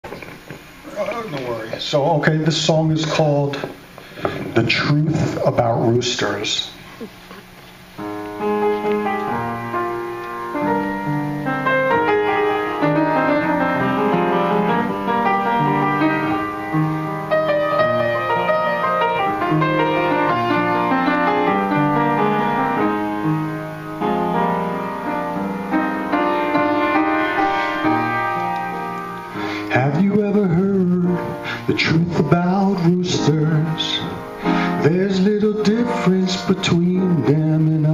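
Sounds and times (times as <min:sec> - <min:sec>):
solo piano: 0:07.9 - 0:37.9.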